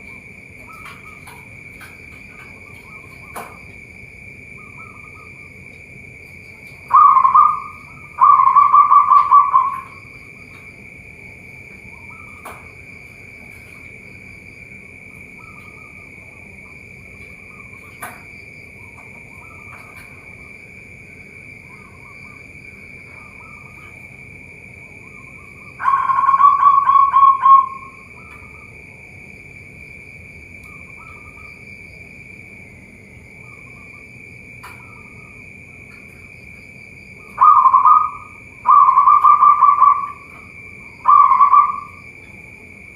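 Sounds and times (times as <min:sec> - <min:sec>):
doves cooing: 0:00.0 - 0:29.0, 0:33.1 - 0:42.8
high-pitched drone: 0:06.9 - 0:10.2, 0:24.8 - 0:28.7, 0:37.3 - 0:42.1.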